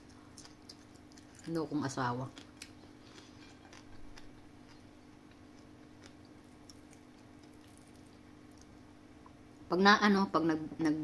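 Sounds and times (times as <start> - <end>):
chewing mouth clicks: 0.0 - 1.6, 2.3 - 8.8
faint low hum: 0.0 - 11.0.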